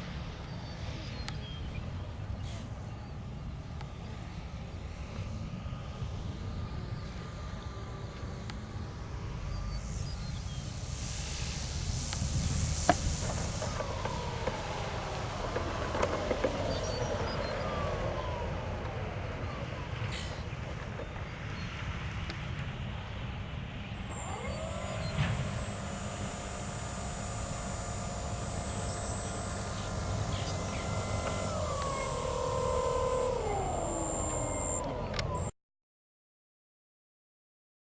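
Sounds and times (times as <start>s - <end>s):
steady low rumble: 8.8s - 21.3s
model airplane motor whine: 8.9s - 21.2s, 24.1s - 35.5s
rushing hiss: 9.4s - 18.4s, 24.1s - 34.8s
wind on microphone: 10.1s - 19.1s
sharp clicks: 24.1s - 35.5s.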